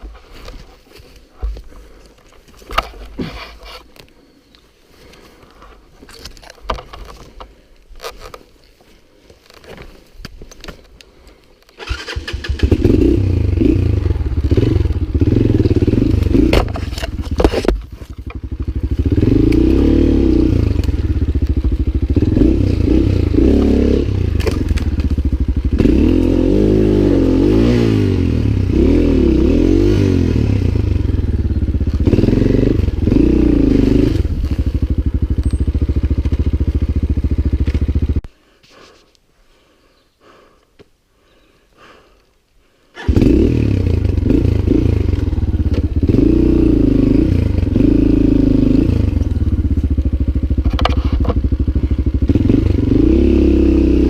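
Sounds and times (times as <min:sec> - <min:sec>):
clicks and scrapes: 0:02.2 - 0:04.1, 0:16.5 - 0:18.4
motorcycle engine revving: 0:11.8 - 0:38.3, 0:43.0 - 0:54.0.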